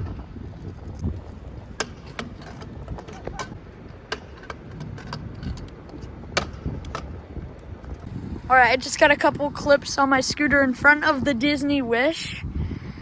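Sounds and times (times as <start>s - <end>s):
wind rumbling on microphone: 0.0s - 13.0s
sharp clicks and rattles: 0.6s - 8.1s.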